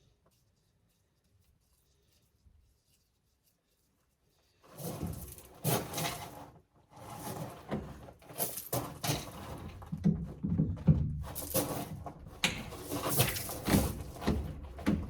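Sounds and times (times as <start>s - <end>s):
scraping of drain pipe fittings: 4.7s - 15.0s.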